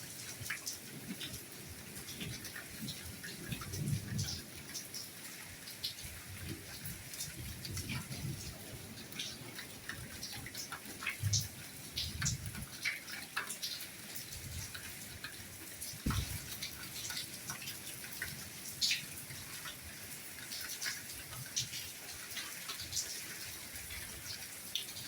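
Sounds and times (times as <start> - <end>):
raindrops ticking and splashing: 0.0 - 25.0
soft rainfall hiss: 0.0 - 25.0
heavy raindrop thud: 16.0 - 17.0.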